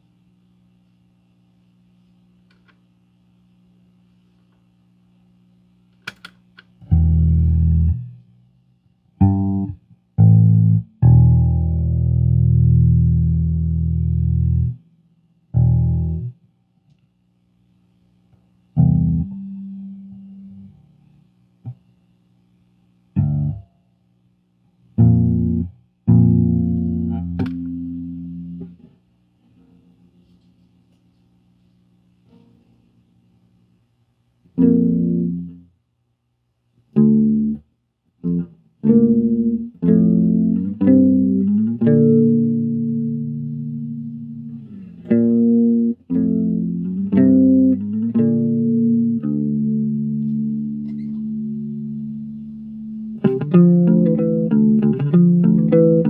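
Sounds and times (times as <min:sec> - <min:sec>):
faint amp hum: 0:00.0 - 0:56.0
plucked bass notes: 0:06.8 - 0:08.2, 0:09.2 - 0:14.8, 0:15.6 - 0:16.4, 0:18.8 - 0:20.7, 0:23.2 - 0:23.7, 0:25.0 - 0:28.8, 0:34.6 - 0:35.6, 0:37.0 - 0:37.6, 0:38.2 - 0:56.0
bass string click: 0:25.0 - 0:28.0.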